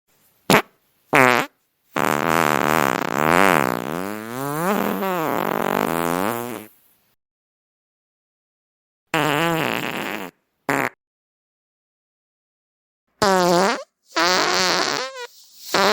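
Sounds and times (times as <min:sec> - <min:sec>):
fart sound effects: 0:00.5 - 0:06.7, 0:09.1 - 0:11.0, 0:13.2 - 0:15.9.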